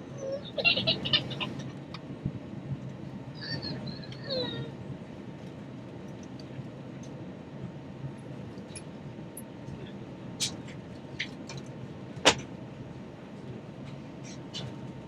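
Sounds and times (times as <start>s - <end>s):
airplane cabin engine hum: 0.0s - 15.0s.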